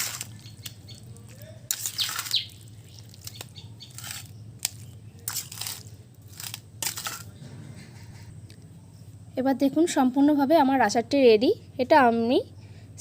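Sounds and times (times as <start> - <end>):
salt scraping in pickle: 0.0 - 0.8, 1.7 - 7.3.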